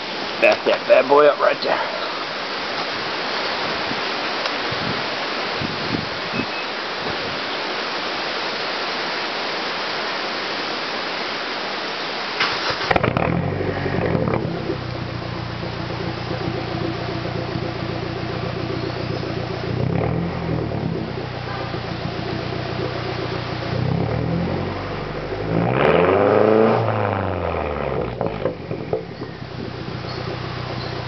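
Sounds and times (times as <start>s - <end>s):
car engine idling and revving: 12.6s - 31.0s.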